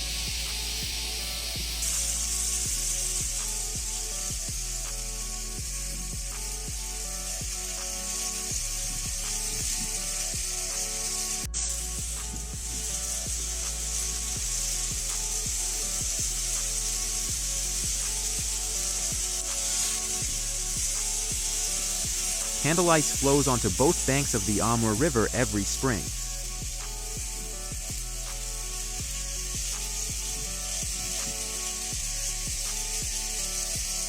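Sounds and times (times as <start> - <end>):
soft background music: 0.0 - 34.0.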